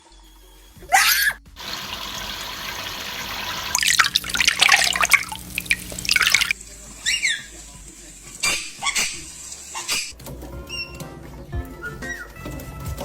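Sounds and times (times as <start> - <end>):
water running from a tap: 0.4 - 10.1
water splashing: 1.6 - 10.2.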